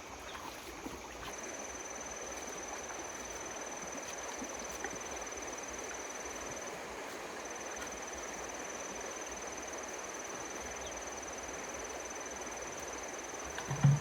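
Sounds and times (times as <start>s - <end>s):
water rushing through pump: 13.4s - 14.0s.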